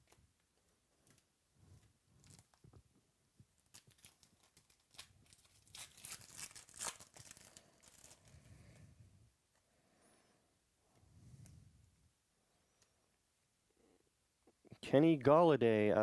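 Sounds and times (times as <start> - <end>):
foil wrapper crinkling and tearing: 3.6 - 8.4.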